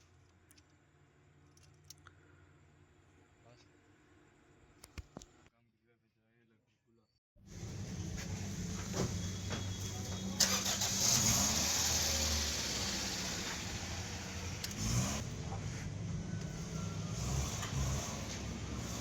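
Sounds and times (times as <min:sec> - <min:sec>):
car engine starting and running: 0:07.5 - 0:19.0.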